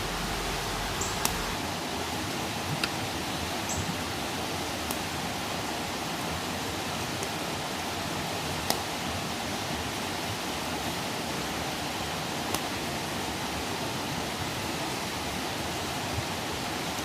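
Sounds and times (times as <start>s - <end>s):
campfire hissing: 0.0s - 17.0s
fire crackles and pops: 8.6s - 8.9s, 12.4s - 12.8s.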